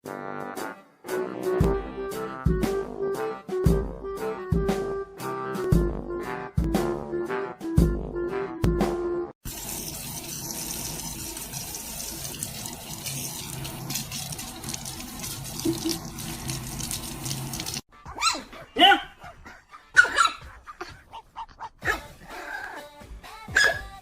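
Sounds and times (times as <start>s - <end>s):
music: 0.0s - 9.4s, 21.8s - 24.0s
running water: 9.4s - 17.9s.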